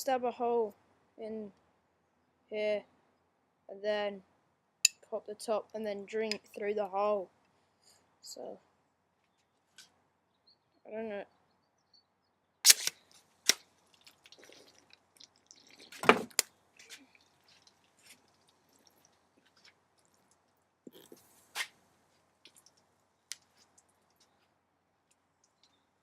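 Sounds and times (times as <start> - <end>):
soda dripping and splashing: 13.4 - 21.6, 22.3 - 24.4, 25.1 - 25.8.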